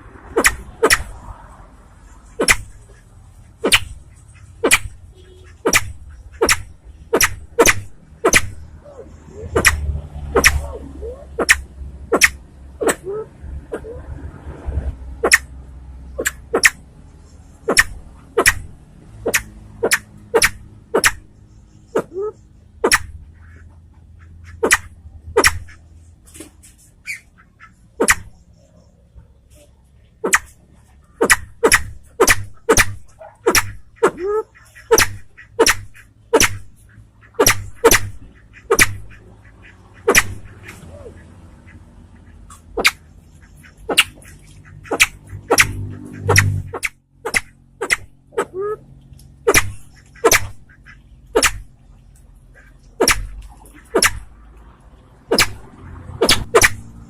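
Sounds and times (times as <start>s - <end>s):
pheasant sharp call notes: 0.3s - 1.2s, 2.3s - 14.0s, 17.6s - 23.6s, 27.0s - 29.0s, 31.2s - 39.2s, 40.0s - 41.2s, 42.5s - 48.8s, 49.4s - 51.7s, 52.6s - 54.3s, 55.3s - 56.9s.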